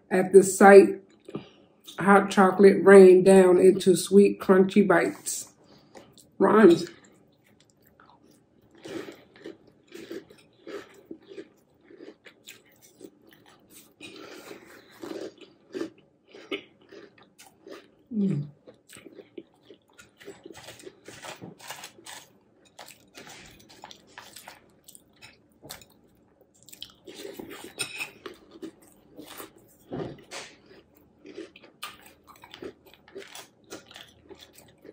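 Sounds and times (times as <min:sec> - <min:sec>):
crunchy cereal chewing: 0:06.9 - 0:34.9
person humming mmm: 0:18.1 - 0:18.5.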